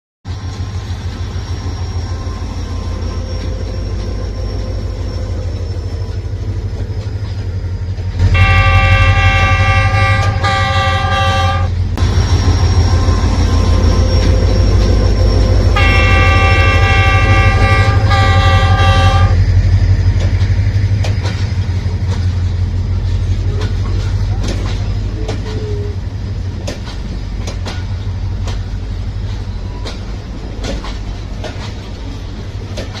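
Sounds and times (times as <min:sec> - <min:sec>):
diesel locomotive engine rumbling: 0:00.3 - 0:33.0
train horn blasts: 0:08.2 - 0:11.8, 0:15.7 - 0:19.4
wheels clicking over rail joints: 0:20.0 - 0:33.0.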